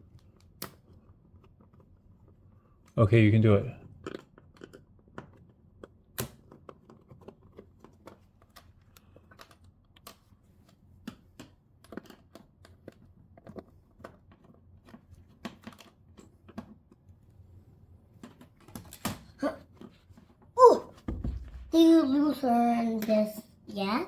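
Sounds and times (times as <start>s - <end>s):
louder knock: 21.0s - 21.8s.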